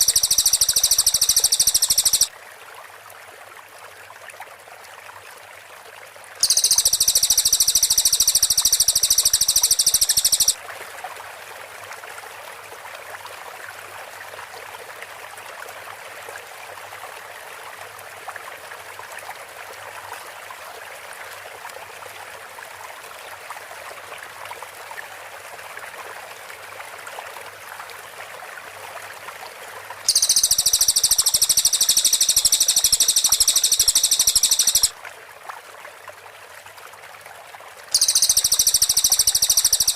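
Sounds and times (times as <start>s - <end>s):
bird trilling high notes: 0.0s - 2.3s, 6.4s - 10.6s, 30.1s - 34.9s, 38.0s - 39.9s
faint steady hiss: 0.0s - 2.3s, 6.4s - 10.6s, 30.0s - 34.9s, 38.0s - 39.9s.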